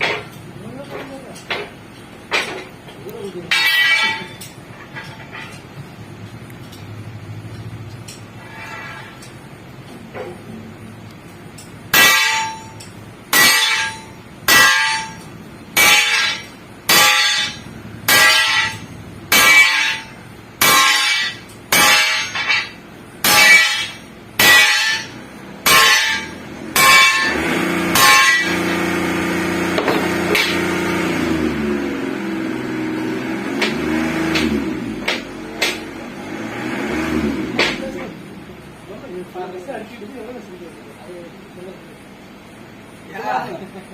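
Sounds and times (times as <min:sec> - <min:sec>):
hammer clanging on steel spring: 0:00.0 - 0:10.5, 0:11.4 - 0:28.9, 0:29.7 - 0:30.8
steady machine hum: 0:00.0 - 0:43.9.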